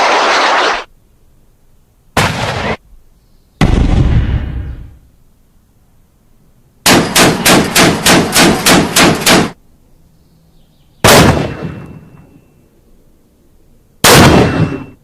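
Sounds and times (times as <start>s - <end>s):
single loud gunshot with echo: 2.2s - 2.8s, 11.0s - 11.9s, 14.0s - 15.0s
automatic gunfire: 6.9s - 9.6s, 11.0s - 11.7s, 14.0s - 14.8s.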